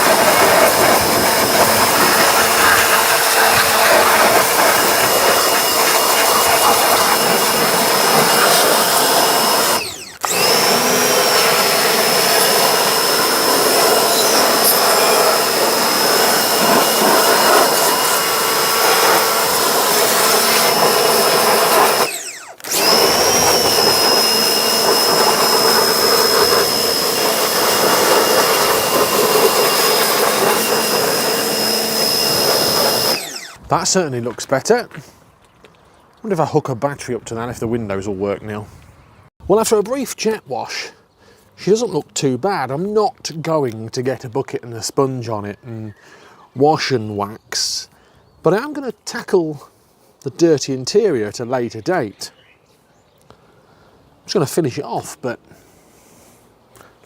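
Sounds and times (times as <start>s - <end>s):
pressure washer running: 0.0s - 34.0s.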